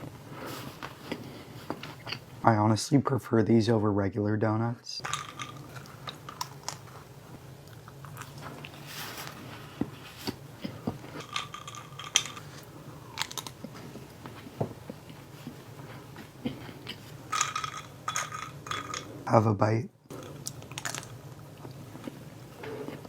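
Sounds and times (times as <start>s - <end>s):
chewing crunchy food: 5.4s - 17.2s, 20.1s - 23.0s.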